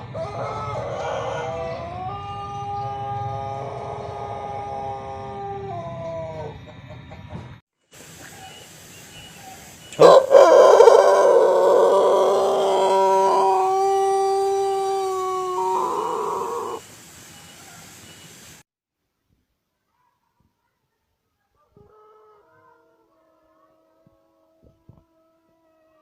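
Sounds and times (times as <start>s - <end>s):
rooster crowing: 0.0s - 6.7s, 10.0s - 16.8s, 21.7s - 26.0s.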